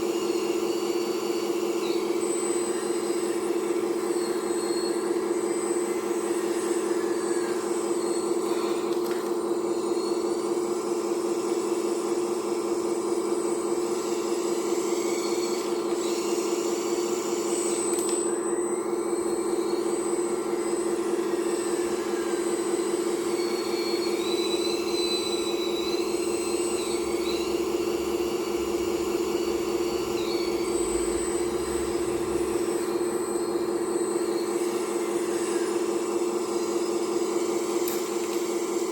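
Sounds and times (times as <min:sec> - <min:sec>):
faint high whines: 0:00.0 - 0:38.9
hydraulic pump whining: 0:13.1 - 0:38.9.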